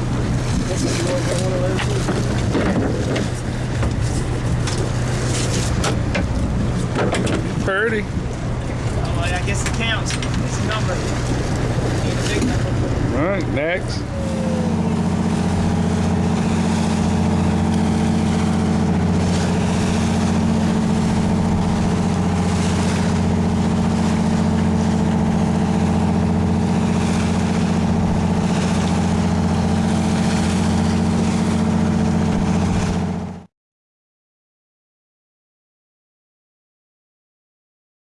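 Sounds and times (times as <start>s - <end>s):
boat engine running: 0.0s - 33.5s.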